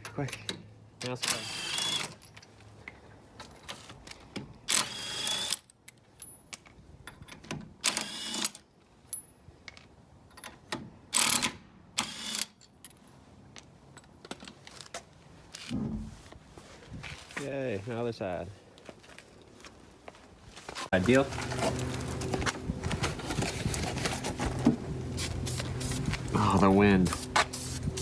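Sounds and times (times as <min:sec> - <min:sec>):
aerosol spray can hissing: 0:25.1 - 0:26.2, 0:27.0 - 0:28.0.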